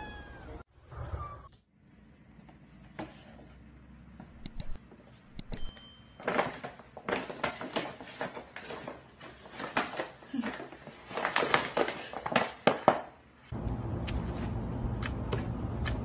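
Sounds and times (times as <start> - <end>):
paper bag rustling and crinkling: 6.3 - 13.0.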